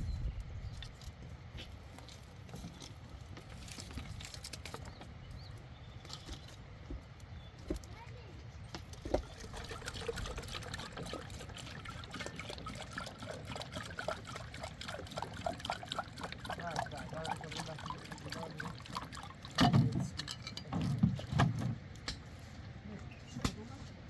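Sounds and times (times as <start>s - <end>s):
water trickling and gurgling: 8.9s - 21.6s.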